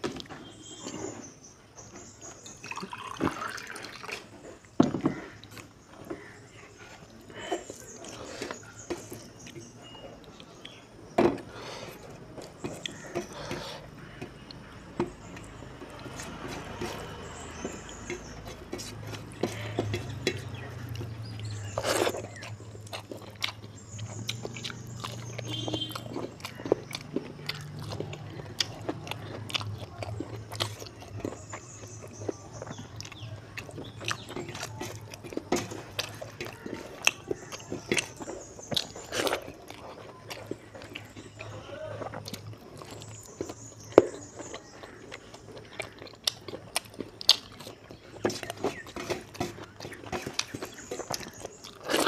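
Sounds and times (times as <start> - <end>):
fingers mixing rice on steel plate: 15.4 - 24.5
wet chewing and lip smacks: 17.0 - 52.0.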